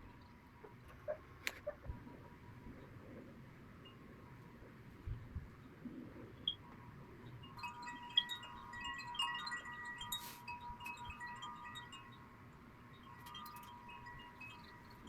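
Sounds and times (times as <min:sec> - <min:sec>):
faint chimes ringing: 0:06.5 - 0:15.0.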